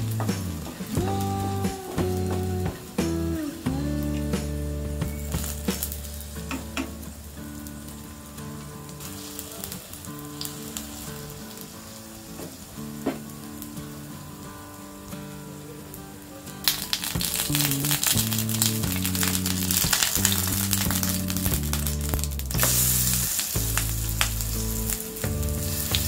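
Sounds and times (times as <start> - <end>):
soft background music: 0.0 - 26.0
batter frying in oil: 5.1 - 13.8, 16.6 - 26.0.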